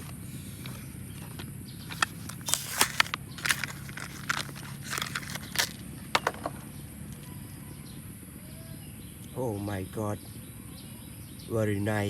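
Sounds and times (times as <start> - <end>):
steady low hum: 0.0 - 12.0
plastic packaging crackling: 1.8 - 6.3.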